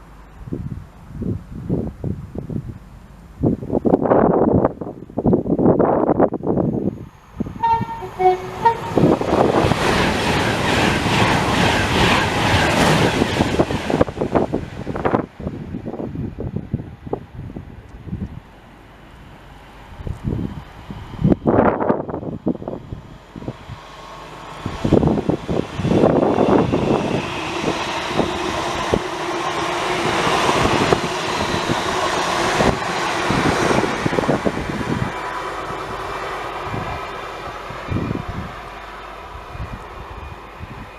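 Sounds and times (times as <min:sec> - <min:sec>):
train rushing past: 0:03.4 - 0:40.9
two-tone train horn: 0:07.4 - 0:09.2.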